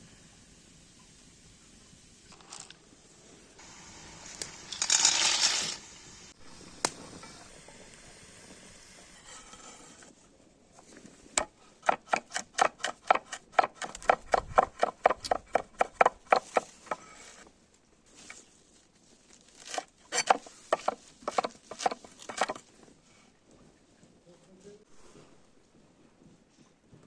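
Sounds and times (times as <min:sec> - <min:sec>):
loud scraping hiss: 0:02.3 - 0:10.1.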